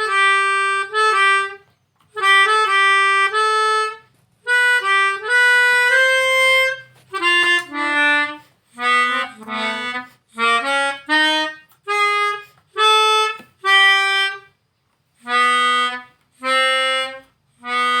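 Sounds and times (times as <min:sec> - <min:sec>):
harmonica playing slow melody: 0:00.0 - 0:18.0.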